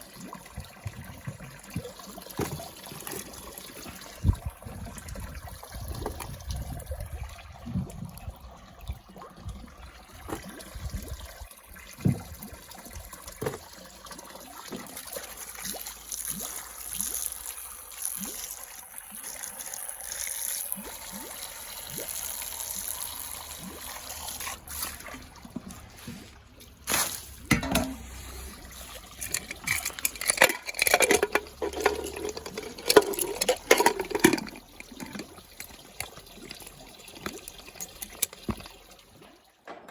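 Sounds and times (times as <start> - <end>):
water trickling and splashing: 0.0 - 39.7
knocks and clinks: 29.2 - 36.1.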